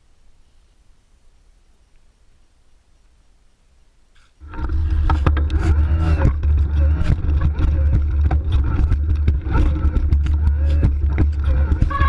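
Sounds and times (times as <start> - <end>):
bike knocks and rattles: 4.4 - 12.0
faint wavering motor whine: 4.4 - 12.0
wind rumble on microphone: 4.4 - 12.0.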